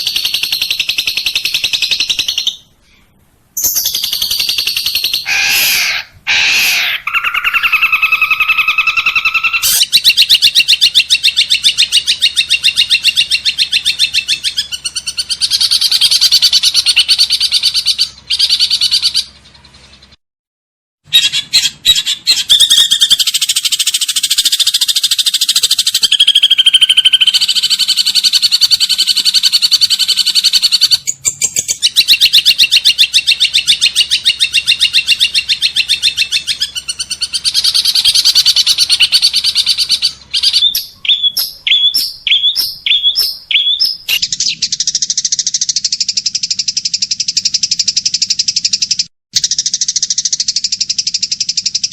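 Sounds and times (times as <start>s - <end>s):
buzzy bird trill: 0.0s - 2.7s, 3.6s - 20.2s, 21.1s - 51.9s
sharp bird chirps: 0.0s - 3.0s, 3.6s - 20.2s, 21.1s - 51.9s
songbirds chattering trills: 21.3s - 51.9s.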